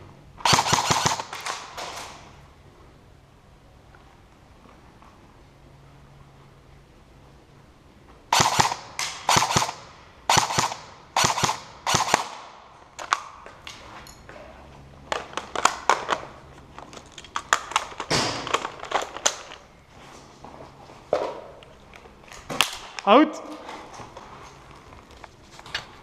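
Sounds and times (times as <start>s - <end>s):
airsoft gun shots: 0.4s - 2.2s, 8.3s - 12.6s.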